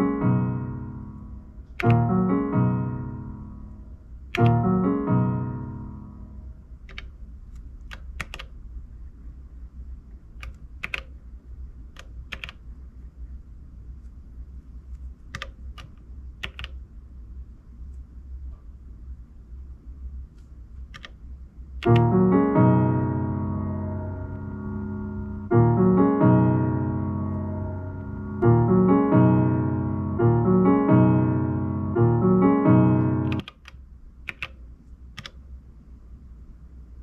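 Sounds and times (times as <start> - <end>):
piano-like synth phrase: 0.0 - 6.8, 21.8 - 33.4
steady low hum: 0.0 - 37.0
button clicks: 1.8 - 2.2, 4.4 - 4.7.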